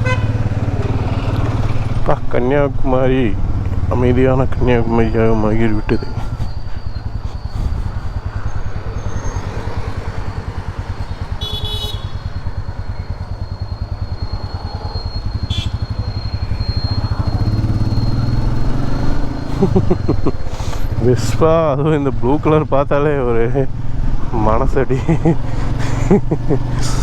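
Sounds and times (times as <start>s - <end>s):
motorcycle engine running: 0.0s - 24.2s
short horn beep: 11.3s - 13.2s, 14.7s - 18.4s.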